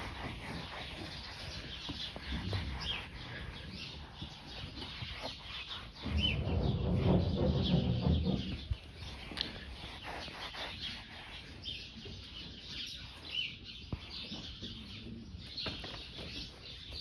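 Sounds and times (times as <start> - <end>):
small birds chirping: 0.0 - 17.0
microphone handling rumble: 6.0 - 9.2.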